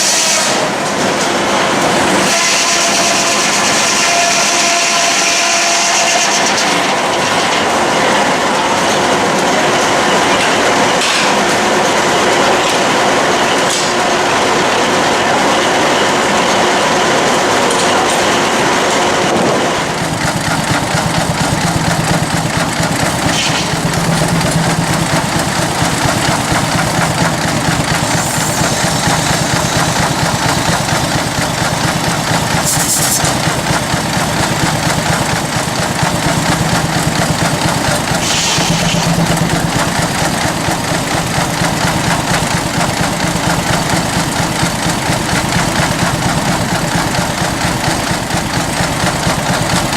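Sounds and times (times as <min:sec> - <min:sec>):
steam engine running sawmill: 0:00.0 - 0:49.9
steam hissing bursts: 0:20.5 - 0:35.3, 0:36.0 - 0:48.1.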